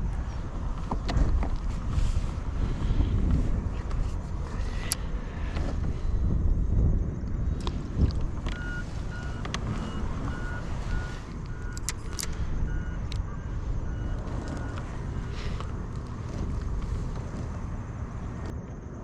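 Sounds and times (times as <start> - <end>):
wind rumble on microphone: 0.0 - 19.0
short electronic beeps: 8.5 - 11.8
sharp clicks: 10.4 - 13.3.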